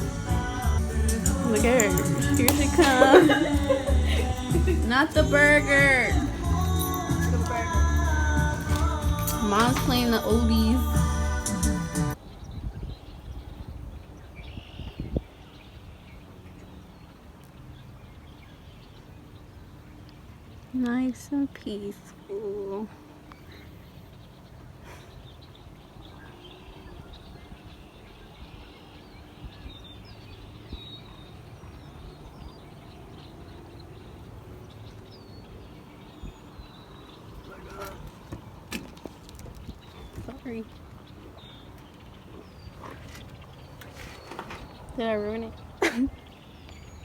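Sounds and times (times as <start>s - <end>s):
low outdoor rumble: 0.0s - 12.2s
birds chirping: 0.0s - 47.0s
wind rumble on microphone: 11.8s - 16.2s.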